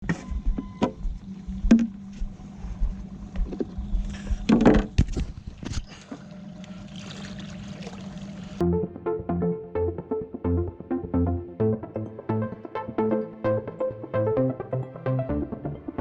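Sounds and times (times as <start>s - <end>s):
boat hum and rumble: 0.0s - 8.7s
knocks: 1.7s - 2.0s.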